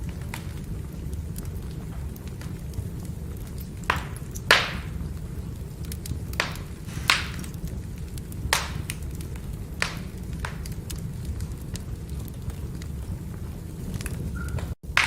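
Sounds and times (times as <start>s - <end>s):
firewood popping: 0.0s - 15.0s
low rush of flames: 0.0s - 15.0s.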